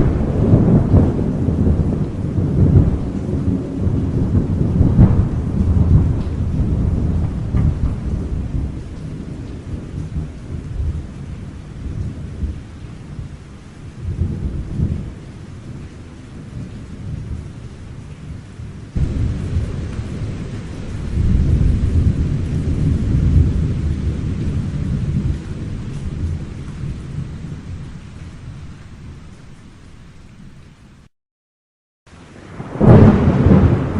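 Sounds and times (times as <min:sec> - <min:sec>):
thunder rumbling: 0:00.0 - 0:13.4, 0:14.0 - 0:30.6, 0:32.1 - 0:33.9
steady rain: 0:00.0 - 0:31.1, 0:32.1 - 0:33.9.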